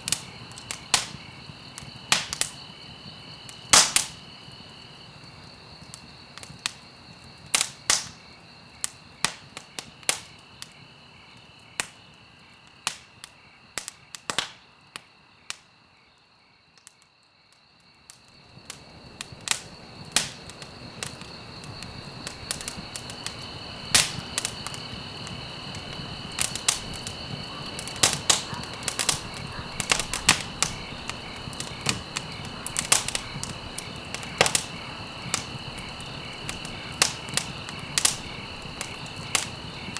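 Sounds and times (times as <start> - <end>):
wood fire crackling: 0.0 - 15.6, 17.7 - 39.9.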